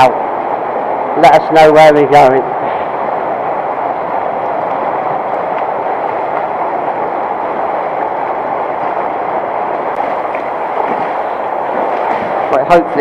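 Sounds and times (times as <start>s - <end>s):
river water rushing over weir: 0.0s - 13.0s.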